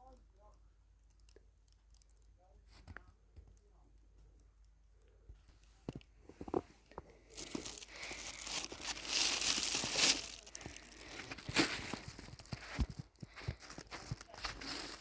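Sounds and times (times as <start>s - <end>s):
crinkling handling noise: 5.1s - 15.0s.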